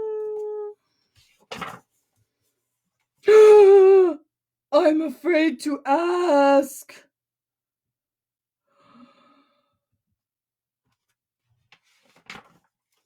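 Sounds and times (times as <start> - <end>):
woman sighing: 3.3 - 4.2.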